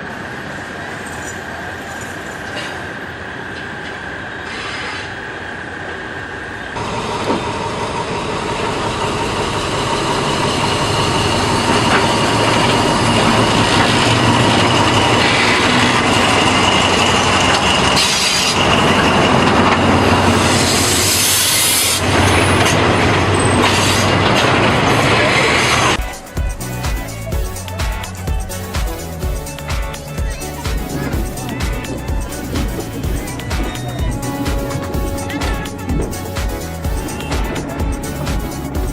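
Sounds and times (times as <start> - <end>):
high wheel squeal: 0.0 - 5.5, 8.5 - 26.2, 29.9 - 38.9
train rolling on rails: 0.0 - 38.9
short hissing surges: 4.4 - 5.4.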